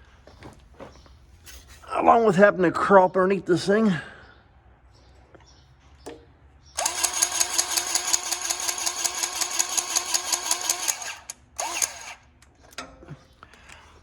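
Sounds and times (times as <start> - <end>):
powered grease gun pumping: 6.8 - 12.3.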